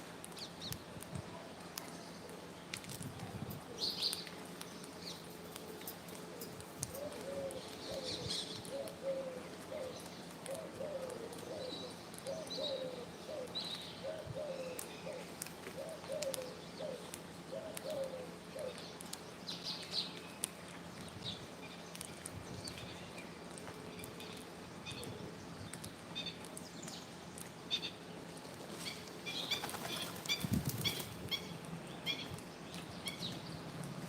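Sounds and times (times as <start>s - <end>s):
pigeon cooing: 5.5s - 18.8s.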